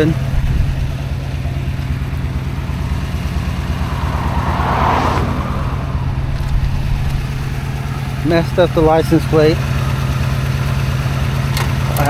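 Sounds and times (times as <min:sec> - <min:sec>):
truck engine idling: 0:00.0 - 0:12.0
rushing noise: 0:01.9 - 0:08.4.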